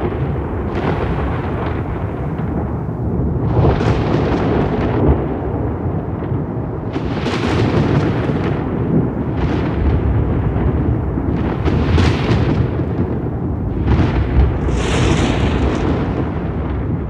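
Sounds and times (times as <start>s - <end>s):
crackling thunder peals: 0.0s - 17.0s
thunder rumbling: 0.0s - 17.0s.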